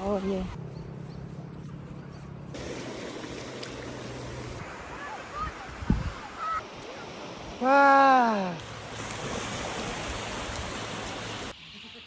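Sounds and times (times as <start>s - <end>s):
waves on a shore: 2.6s - 11.6s
person calling out wah: 7.6s - 8.6s.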